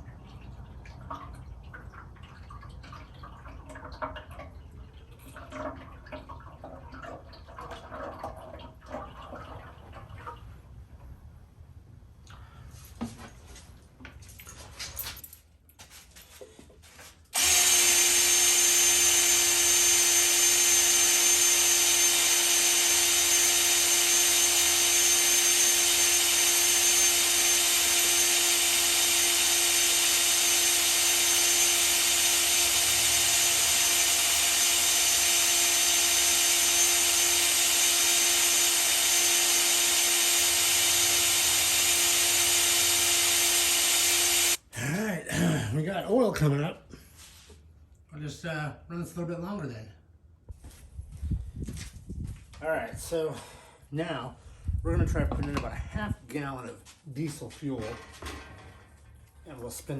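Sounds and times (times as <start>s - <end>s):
electric drill running: 17.4s - 44.6s.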